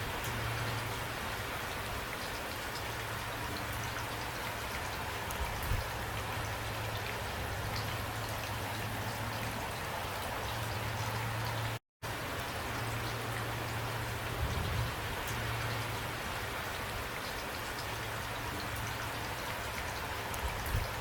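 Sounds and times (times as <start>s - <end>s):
heavy rain pattering: 0.0s - 21.0s.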